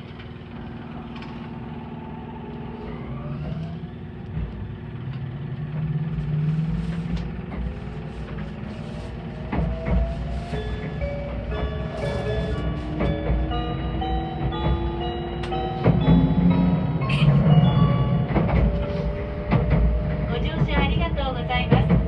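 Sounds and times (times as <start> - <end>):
traction motor whine rising: 0.0 - 7.6, 8.5 - 20.4
train low rumble: 0.0 - 22.0.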